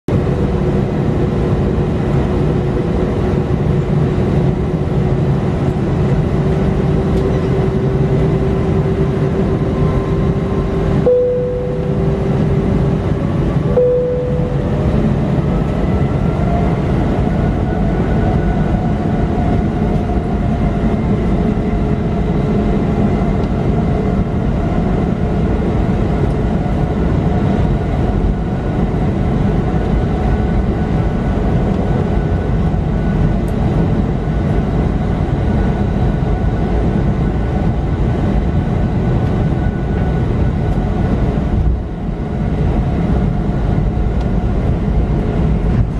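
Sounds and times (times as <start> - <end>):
jet engines rumbling and whining: 0.1 - 45.9.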